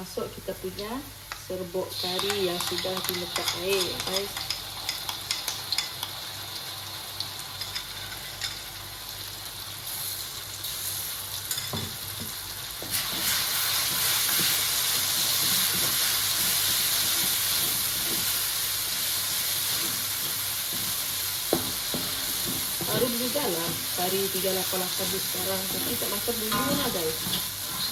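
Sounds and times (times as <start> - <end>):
paste sizzling in hot oil: 1.9 - 27.9
spatula stirring in pan: 12.8 - 23.9, 25.0 - 27.9.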